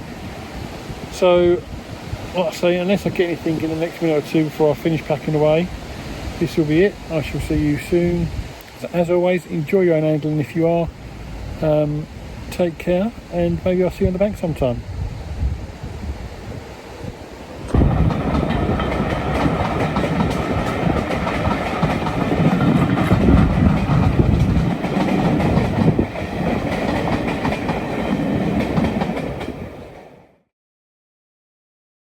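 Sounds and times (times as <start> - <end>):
train rumbling with wheel clatter: 0.1 - 8.6, 10.0 - 30.3.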